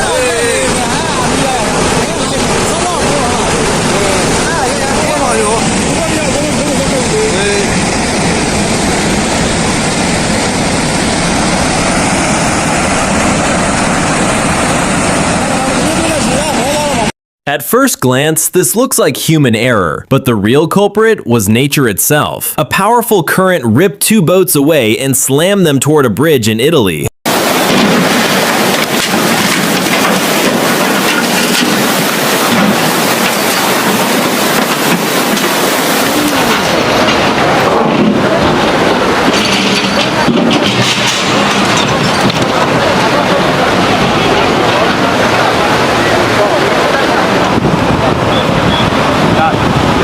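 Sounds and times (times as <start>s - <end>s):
floodwater rushing with debris: 0.0s - 17.1s, 27.3s - 50.0s.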